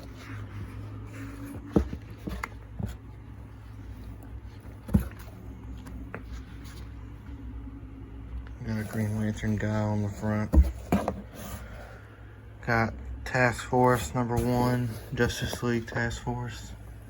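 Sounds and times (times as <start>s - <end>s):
steady low hum: 0.0s - 17.0s
comic books tapping down: 1.1s - 3.0s, 10.0s - 11.3s.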